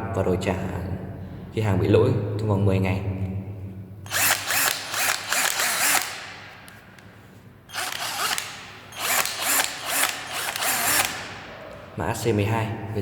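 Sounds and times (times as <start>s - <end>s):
cordless drill motor running: 4.1s - 6.8s, 7.7s - 11.5s.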